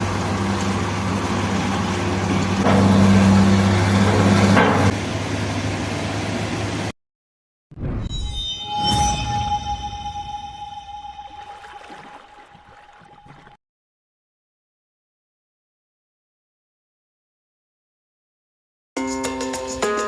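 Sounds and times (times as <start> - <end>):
diesel engine droning: 0.0 - 6.7.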